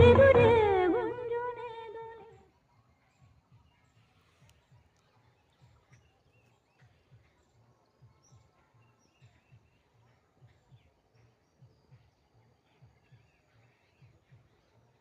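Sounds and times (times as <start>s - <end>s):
soft low pulsing: 0.0s - 2.1s.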